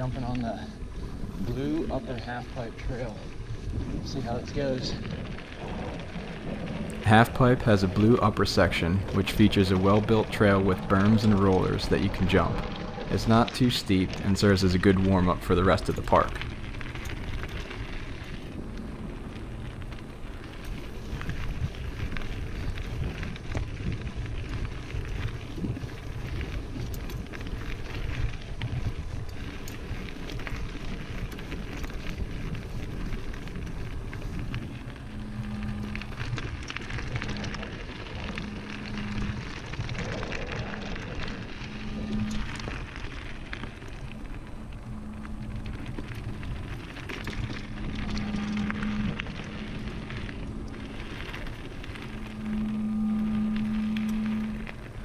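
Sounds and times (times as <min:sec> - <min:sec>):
bike tyre and trail noise: 0:00.0 - 0:55.0
low buzz: 0:06.4 - 0:23.1, 0:23.9 - 0:55.0
bike rattles and clicks: 0:16.4 - 0:52.5.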